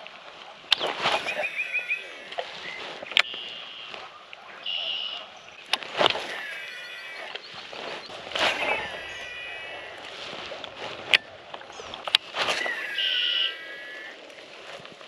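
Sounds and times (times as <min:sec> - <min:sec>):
thin gliding whistle-like calls: 0:00.7 - 0:10.1, 0:12.5 - 0:14.2.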